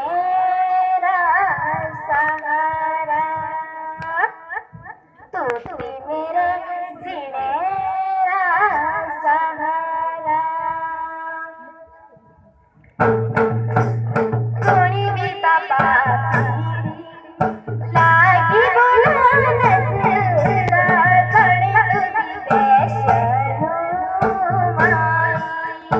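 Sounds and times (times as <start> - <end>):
girl singing: 0.0 - 11.9, 14.6 - 25.9
hand drums and jingles beat: 12.8 - 25.9.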